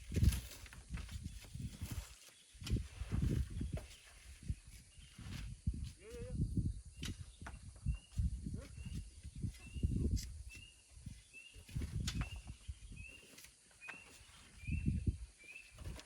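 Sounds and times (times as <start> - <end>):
low thuds and scraping: 0.0 - 13.1.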